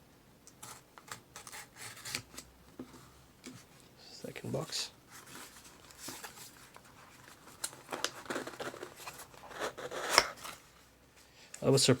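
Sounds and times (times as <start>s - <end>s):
packaging rustling and crinkling: 5.1s - 10.8s.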